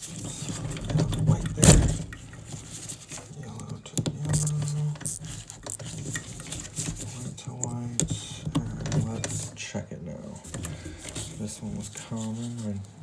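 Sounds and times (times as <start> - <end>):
clicks and scrapes of wires: 0.0 - 9.6.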